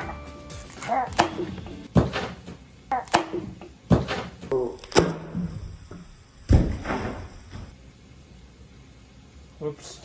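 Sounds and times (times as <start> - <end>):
knife chopping on cutting board: 0.8 - 4.5.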